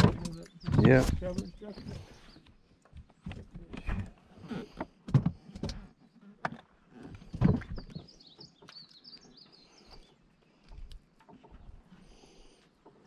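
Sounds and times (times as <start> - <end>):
songbird warbling chirps: 7.7 - 10.6.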